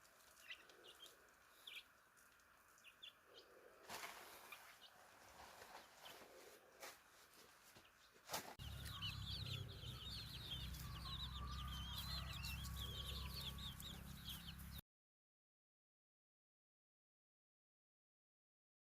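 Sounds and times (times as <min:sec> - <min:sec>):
chickens clucking and cheeping: 0:00.0 - 0:14.8
low hum: 0:08.6 - 0:14.8.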